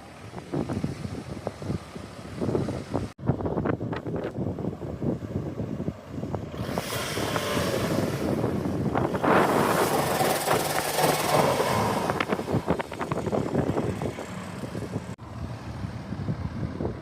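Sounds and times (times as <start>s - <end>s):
car engine and exhaust: 0.0s - 17.0s
exhaust crackles: 6.4s - 15.2s
car passing: 6.5s - 17.0s.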